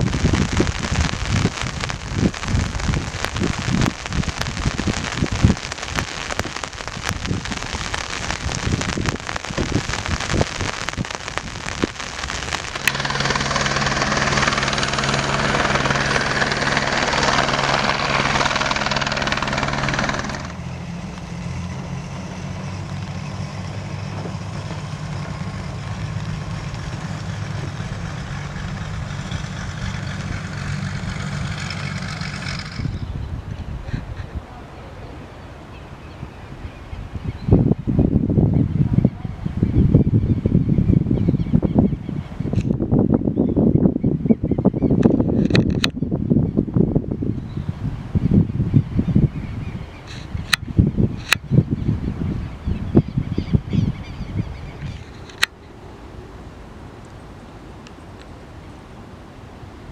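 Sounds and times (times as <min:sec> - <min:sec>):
rain pattering: 0:00.0 - 0:36.0
aircraft engine hum: 0:00.0 - 0:59.9.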